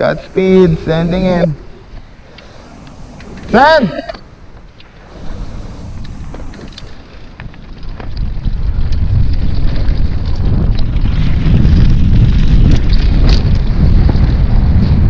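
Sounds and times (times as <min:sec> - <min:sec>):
wind buffeting microphone: 0:00.0 - 0:15.0
bike clicks and rattles: 0:01.8 - 0:15.0.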